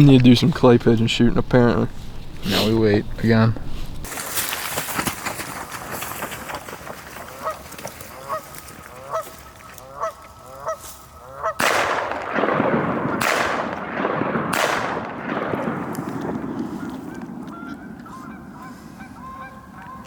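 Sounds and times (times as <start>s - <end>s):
goose honking: 7.2s - 11.7s, 16.7s - 20.0s.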